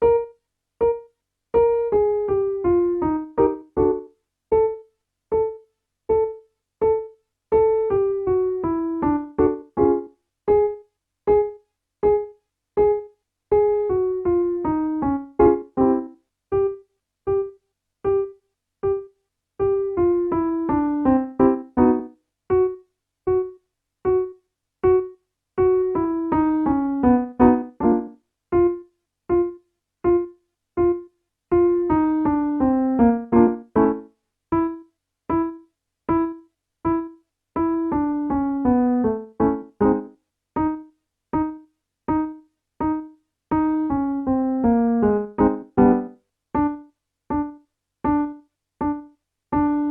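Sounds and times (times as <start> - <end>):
piano playing warmup notes: 1.6 - 4.8, 5.4 - 49.9.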